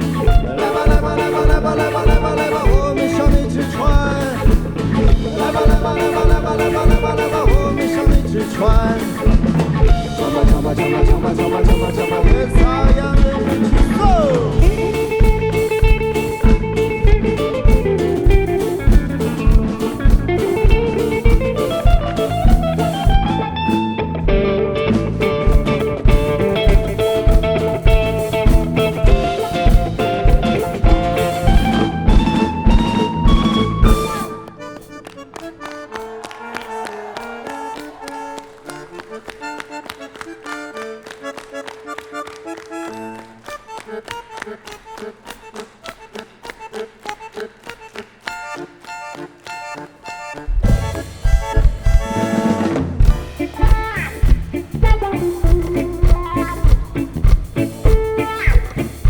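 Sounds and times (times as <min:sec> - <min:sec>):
drums: 0:00.0 - 0:36.2, 0:50.5 - 0:59.0
rock band playing: 0:00.0 - 0:59.0.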